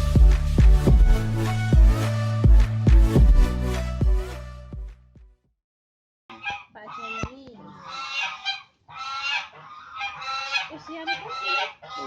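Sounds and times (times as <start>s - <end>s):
domestic fowl calling: 6.3s - 12.0s.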